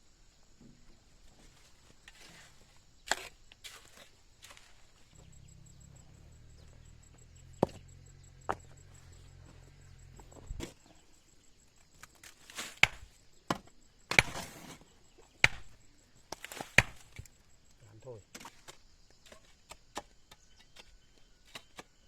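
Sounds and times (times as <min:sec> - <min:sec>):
faint low hum: 0:04.6 - 0:11.7
tool chopping wood: 0:07.4 - 0:08.8, 0:12.6 - 0:14.8, 0:15.4 - 0:17.3.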